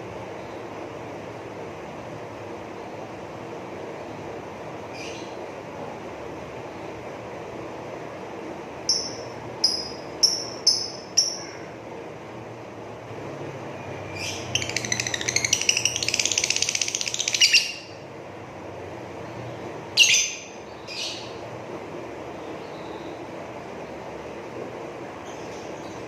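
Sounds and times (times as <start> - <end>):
lovebird chirps: 8.9 - 11.6, 14.0 - 18.0, 20.0 - 21.3
lovebird rattling chatter: 14.5 - 17.9.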